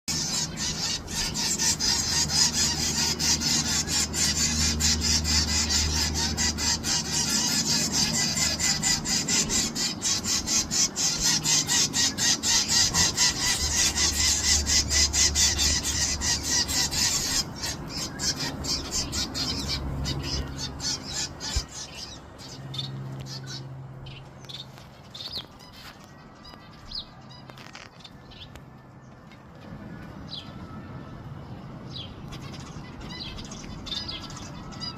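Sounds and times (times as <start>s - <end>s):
nestlings begging hissing chorus: 0.1s - 23.6s.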